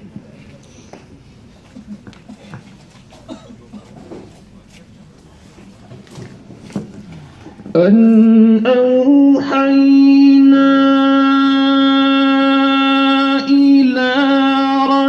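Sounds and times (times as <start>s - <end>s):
man reciting melodically: 7.6s - 15.0s.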